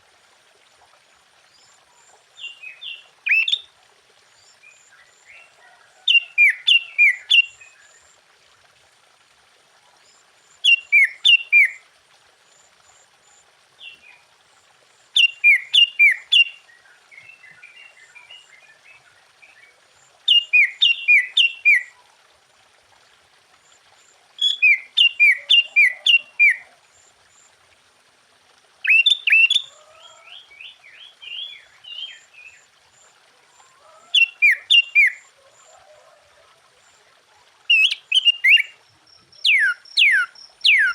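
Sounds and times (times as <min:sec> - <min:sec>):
bulbul singing whistled notes: 0:10.7 - 0:11.8, 0:15.2 - 0:16.6, 0:20.3 - 0:21.9, 0:28.8 - 0:29.6, 0:37.7 - 0:38.7, 0:39.3 - 0:40.9.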